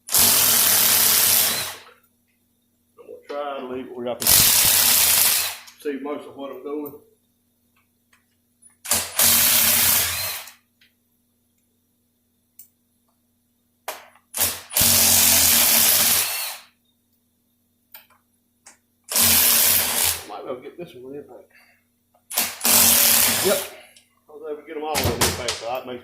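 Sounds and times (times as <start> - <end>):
impact wrench running: 0.0 - 2.0, 4.2 - 5.8, 8.8 - 10.6, 13.9 - 16.7, 19.1 - 20.3, 22.3 - 23.8.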